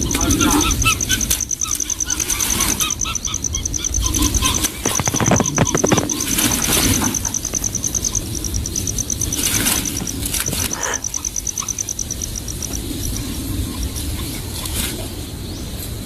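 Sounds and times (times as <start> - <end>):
wing flapping: 0.0 - 15.2
rustling in a nest: 0.3 - 15.3
high-pitched chirping pulse: 0.9 - 12.8.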